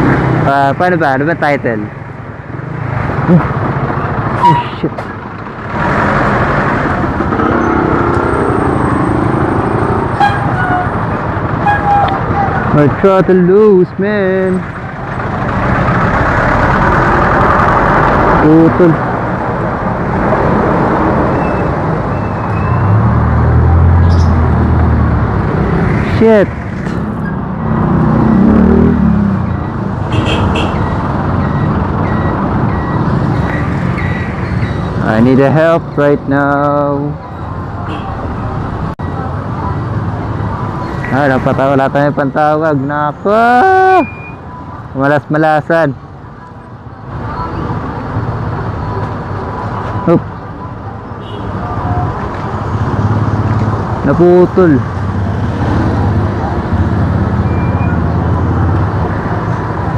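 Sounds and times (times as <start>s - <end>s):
road noise: 0.0s - 59.9s
vehicle engine: 0.0s - 59.9s
vehicle passing by: 22.7s - 30.1s.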